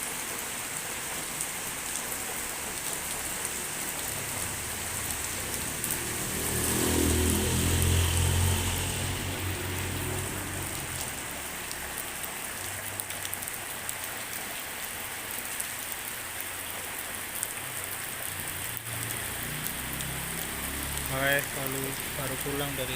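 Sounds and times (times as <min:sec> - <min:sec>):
drizzling rain: 0:00.0 - 0:22.9
rain drops ticking on surface: 0:00.0 - 0:22.9
low engine hum: 0:04.1 - 0:12.9.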